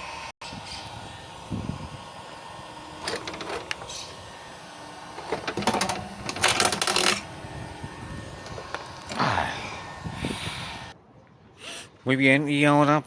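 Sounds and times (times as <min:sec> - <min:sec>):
metal parts clattering: 0:05.3 - 0:07.2.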